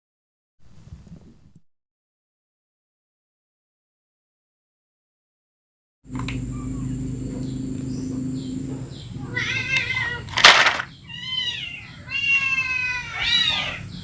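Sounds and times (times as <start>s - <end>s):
low hum: 6.1s - 11.1s
high rising and falling cries: 6.4s - 14.0s.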